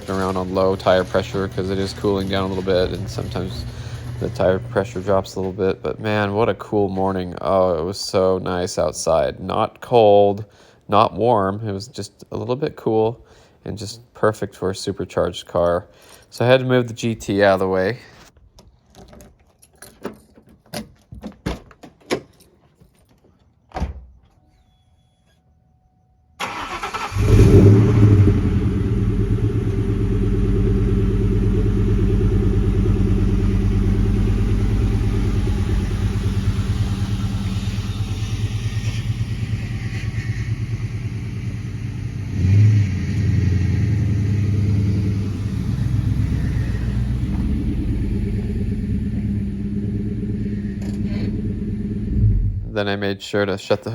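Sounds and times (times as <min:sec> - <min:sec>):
car engine starting and idling: 0:00.0 - 0:09.2, 0:26.4 - 0:53.0.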